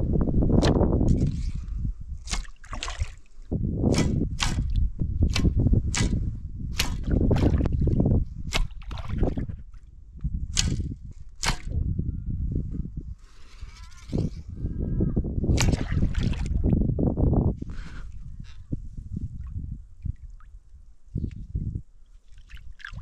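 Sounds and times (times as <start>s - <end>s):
muddy water sloshing and gurgling: 0.5s - 11.8s, 15.5s - 17.0s, 17.9s - 23.0s.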